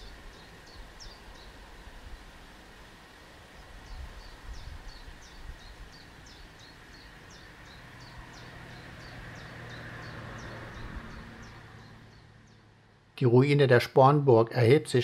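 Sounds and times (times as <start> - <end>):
songbird singing: 0.0 - 2.0, 3.4 - 15.0
outdoor background noise: 0.0 - 15.0.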